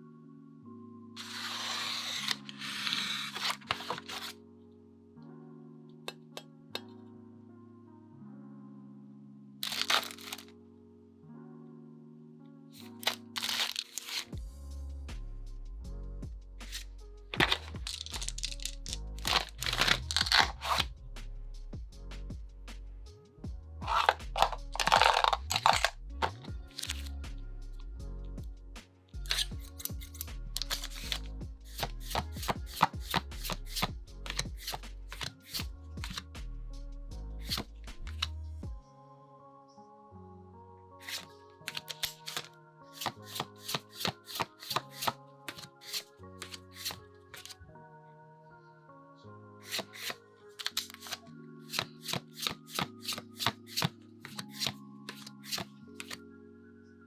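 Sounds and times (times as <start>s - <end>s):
soft background music: 0.0s - 57.0s
trading cards snapping and rustling: 1.2s - 4.4s, 9.6s - 10.5s, 12.8s - 14.4s, 16.7s - 20.9s, 23.8s - 27.2s, 29.3s - 36.3s, 37.4s - 38.4s, 41.0s - 47.6s, 49.6s - 56.2s.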